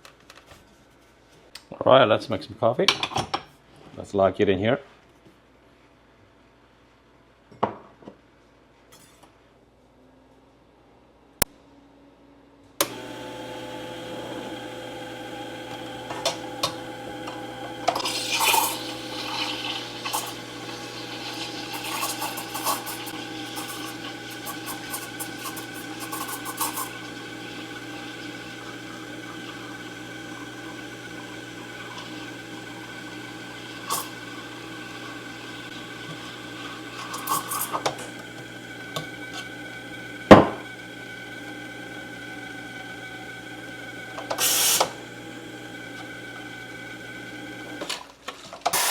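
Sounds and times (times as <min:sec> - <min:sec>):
espresso machine pump humming: 0:12.8 - 0:47.9
cups clinking: 0:15.6 - 0:39.5, 0:40.3 - 0:40.7.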